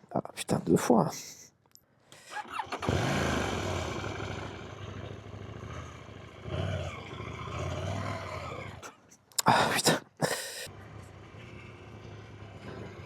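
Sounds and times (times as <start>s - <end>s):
motorcycle engine idling: 2.7s - 6.7s.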